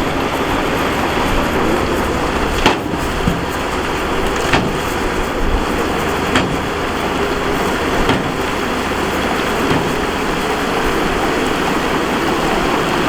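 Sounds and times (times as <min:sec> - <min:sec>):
heavy earthmoving machinery running: 0:00.0 - 0:13.0
sharp knocks: 0:01.7 - 0:10.8.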